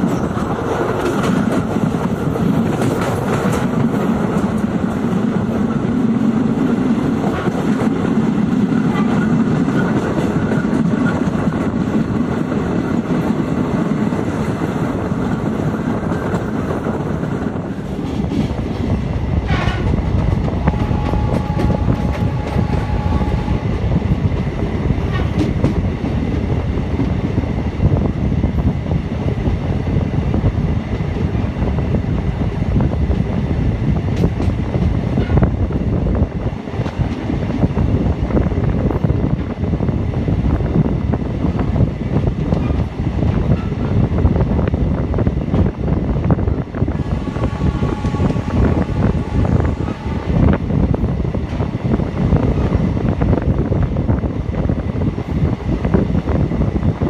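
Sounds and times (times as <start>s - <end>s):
rumble of train wheels on rail: 0.0s - 57.0s
train horn: 19.5s - 19.9s, 20.6s - 23.8s, 46.9s - 50.6s.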